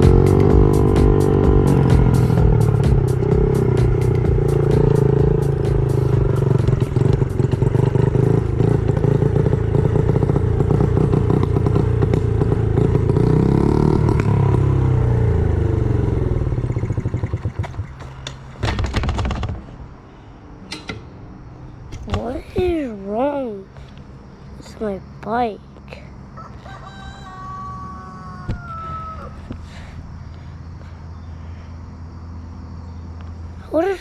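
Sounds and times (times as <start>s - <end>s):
small motorbike engine running: 0.0s - 19.6s.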